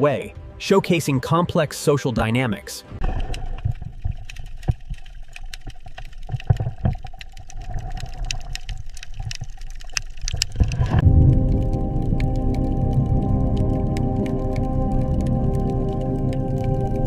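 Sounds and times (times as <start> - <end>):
low water rumble: 2.9 - 17.0
sharp clicks: 3.1 - 16.9
music with sustained notes: 11.0 - 17.0.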